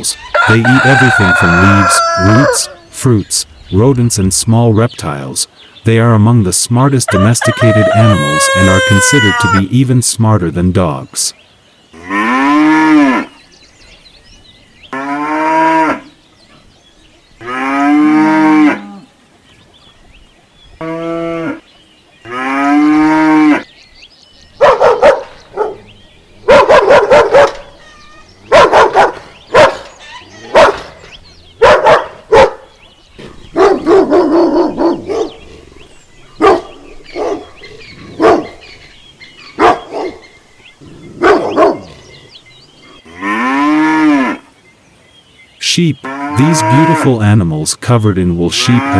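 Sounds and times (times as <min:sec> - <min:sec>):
pigs calling: 0:00.0 - 0:03.9, 0:24.6 - 0:44.5, 0:46.0 - 0:47.5
pigs grunting and squealing: 0:26.6 - 0:32.5, 0:33.2 - 0:38.7, 0:46.0 - 0:47.4, 0:48.4 - 0:48.9.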